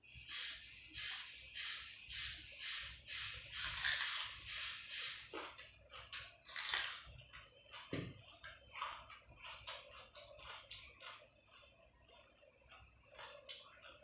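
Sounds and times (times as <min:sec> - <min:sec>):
person chewing crunchy food: 0:03.1 - 0:14.0.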